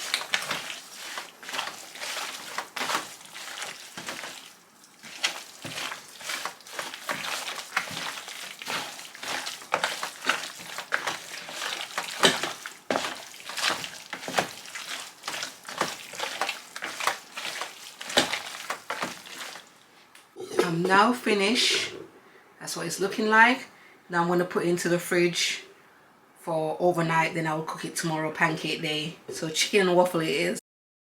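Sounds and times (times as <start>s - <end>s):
rustling and crackling wrapping: 0.0s - 20.0s.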